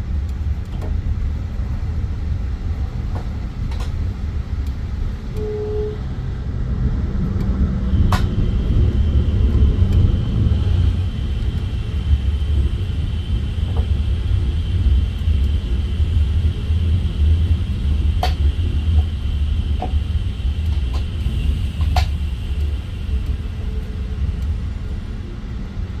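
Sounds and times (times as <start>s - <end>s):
sharp clicks of train wheels: 0.0s - 5.5s, 6.6s - 25.9s
train rumbling on track: 0.0s - 26.0s
faint high whine: 5.3s - 6.2s.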